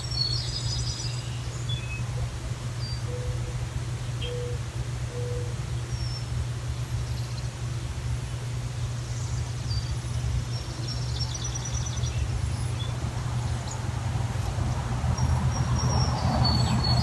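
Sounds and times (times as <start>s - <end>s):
small birds chirping: 0.0s - 4.6s, 7.0s - 7.6s, 8.3s - 17.0s
steady low rumble: 11.8s - 16.9s.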